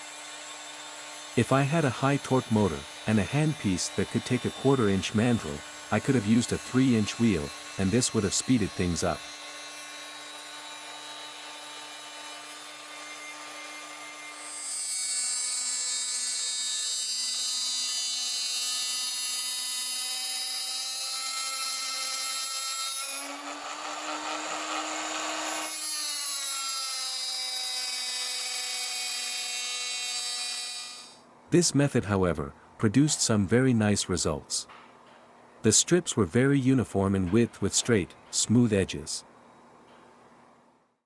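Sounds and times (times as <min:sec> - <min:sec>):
cutting wheel grinding metal: 0:00.0 - 0:31.2
rotary tool whine: 0:00.0 - 0:31.3.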